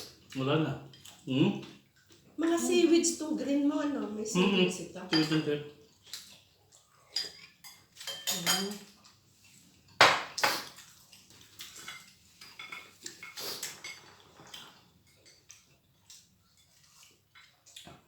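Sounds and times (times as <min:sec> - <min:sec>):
cutlery clinking on dishes: 0:05.1 - 0:06.3, 0:07.1 - 0:09.0, 0:10.0 - 0:17.6.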